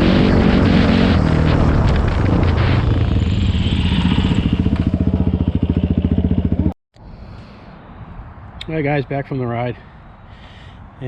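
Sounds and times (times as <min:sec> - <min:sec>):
atv engine chugging: 0:03.0 - 0:06.7.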